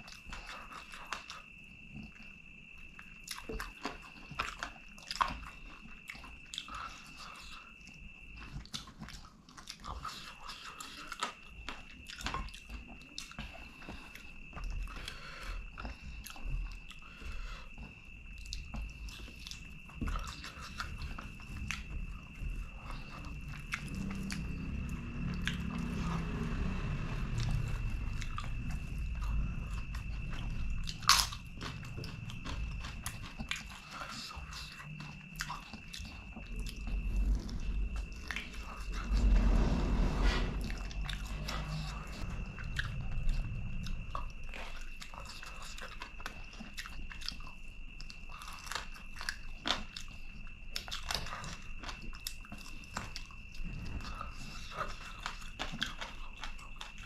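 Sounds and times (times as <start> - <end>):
person chewing food: 28.2 - 36.8, 42.8 - 53.4.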